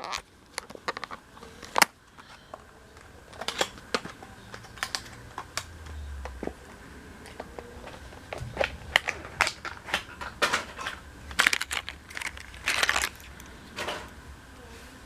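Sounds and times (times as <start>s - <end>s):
sharp clicks of packaging: 0.0s - 6.6s, 7.2s - 14.2s
plastic packaging crinkling: 6.4s - 13.5s.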